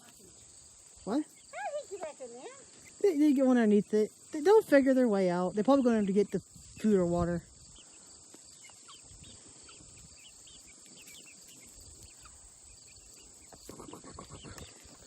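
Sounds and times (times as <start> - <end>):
baby chickens peeping: 0.1 - 15.0.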